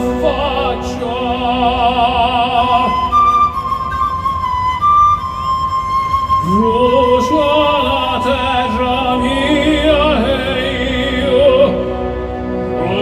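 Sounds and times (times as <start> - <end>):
operatic tenor singing: 0.0 - 3.4, 6.4 - 13.0
orchestral music: 0.0 - 13.0
held woodwind note: 2.8 - 10.0.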